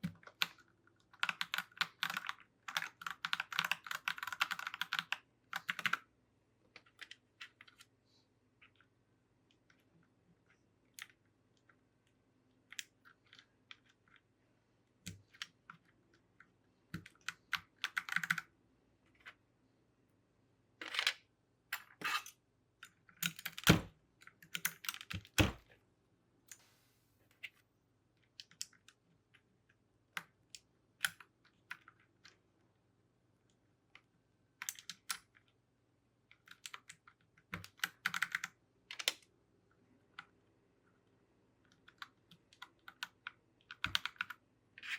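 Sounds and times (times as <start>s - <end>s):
keycaps clicking onto keyboard: 1.2s - 6.0s, 17.0s - 18.5s.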